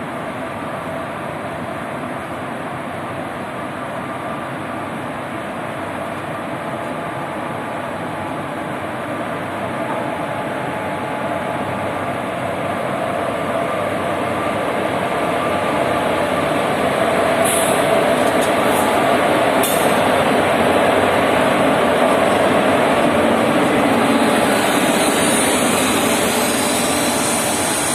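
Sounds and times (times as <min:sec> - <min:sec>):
train wheels rumbling past: 0:10.0 - 0:27.9
high-pitched hisses or squeaks: 0:25.0 - 0:27.9.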